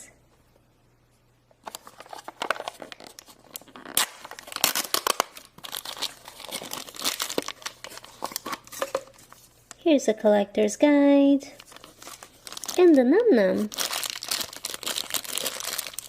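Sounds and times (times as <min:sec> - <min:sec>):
packaging torn and crinkled: 0:01.6 - 0:08.9, 0:11.6 - 0:16.0.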